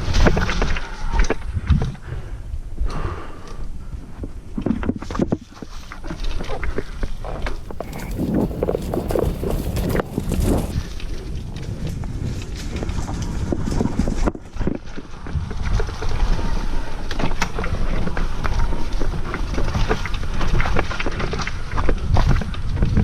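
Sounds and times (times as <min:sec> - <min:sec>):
wind buffeting microphone: 0:03.8 - 0:23.0
bike rattling and knocking: 0:07.6 - 0:10.8.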